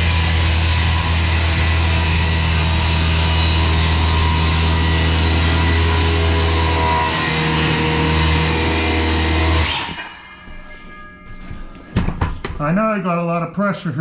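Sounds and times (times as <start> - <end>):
circular saw cutting wood: 0.0 - 10.3.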